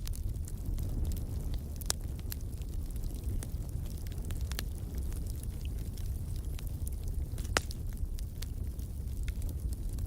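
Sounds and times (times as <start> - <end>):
fire crackles: 0.0 - 10.0
fire flames rumbling: 0.0 - 10.0
sharp pop of fire: 7.3 - 7.8.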